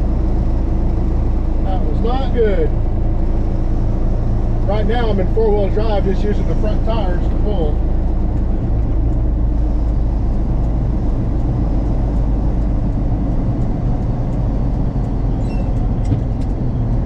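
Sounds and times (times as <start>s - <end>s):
drivetrain and road rumble: 0.0s - 17.0s
truck engine running: 0.0s - 17.0s.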